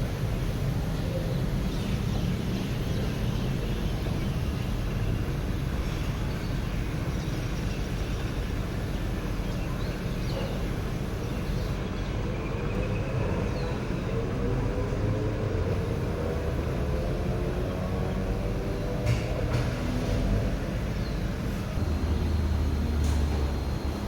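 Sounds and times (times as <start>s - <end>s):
washing machine rumble: 0.0s - 24.0s
motor whine rising in pitch: 15.7s - 19.0s.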